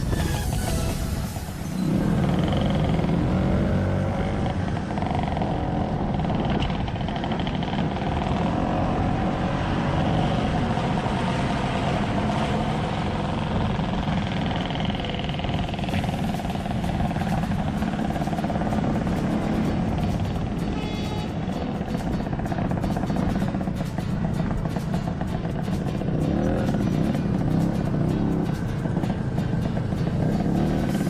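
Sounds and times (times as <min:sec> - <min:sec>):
low wind rumble: 0:00.0 - 0:20.5
motor scooter engine running: 0:01.8 - 0:11.2, 0:11.8 - 0:31.0.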